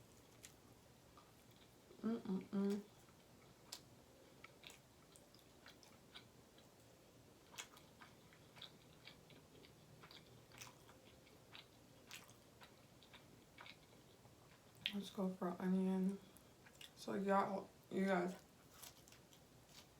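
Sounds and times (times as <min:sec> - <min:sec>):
faint room hiss: 0:00.0 - 0:19.9
chewing mouth clicks and smacks: 0:07.5 - 0:13.9.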